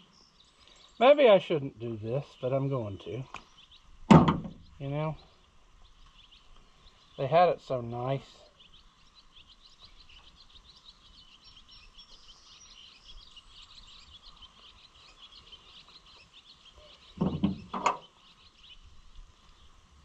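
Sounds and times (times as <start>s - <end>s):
chorus of small chirping calls: 0.0s - 20.0s
loud knock or clatter: 4.1s - 4.6s, 17.2s - 18.0s.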